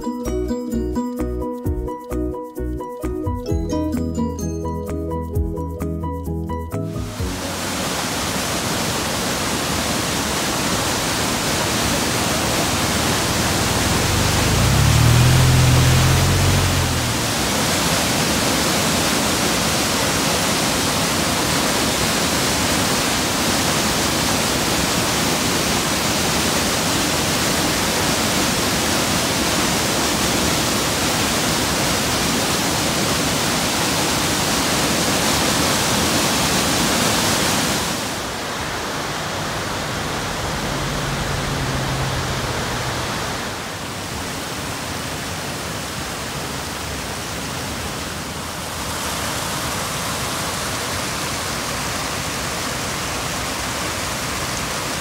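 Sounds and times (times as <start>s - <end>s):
waterfall rushing: 6.9s - 55.0s
low rumble: 12.3s - 17.6s.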